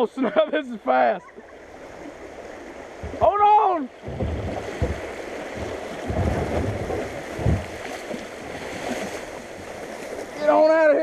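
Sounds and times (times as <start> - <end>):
creek water rushing: 0.0 - 11.0
low thumps: 2.9 - 8.4.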